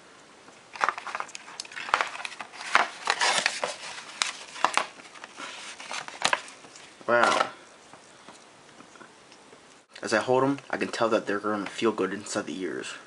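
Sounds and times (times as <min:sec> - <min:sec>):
packaging crinkling: 0:00.7 - 0:07.6.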